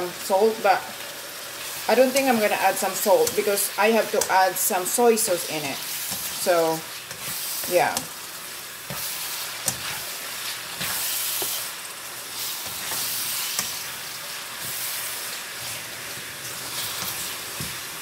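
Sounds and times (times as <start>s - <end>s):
chicken and onions sizzling in pan: 0.0s - 18.0s
spatula tapping pan: 8.8s - 10.0s.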